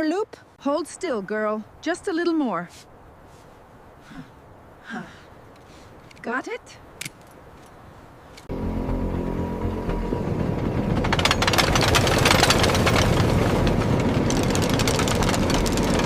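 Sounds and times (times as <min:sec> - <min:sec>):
heavy machine engine humming: 0:08.5 - 0:16.0
dense rattling clatter: 0:10.0 - 0:16.0.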